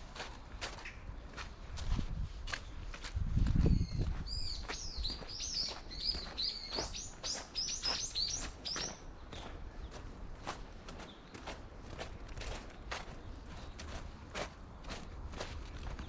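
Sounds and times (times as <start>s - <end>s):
faint footsteps on path: 0.0s - 16.0s
songbird chirping: 3.6s - 15.0s.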